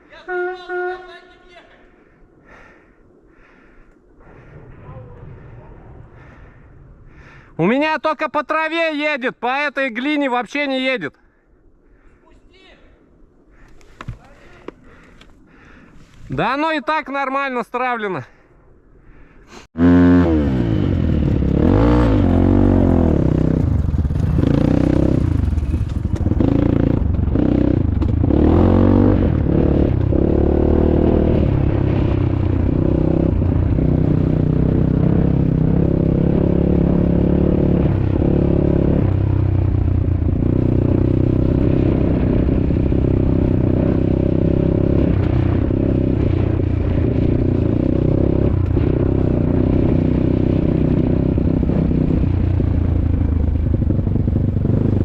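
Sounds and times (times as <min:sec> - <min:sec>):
dirt bike engine revving: 0:19.8 - 0:39.5, 0:40.2 - 0:55.0.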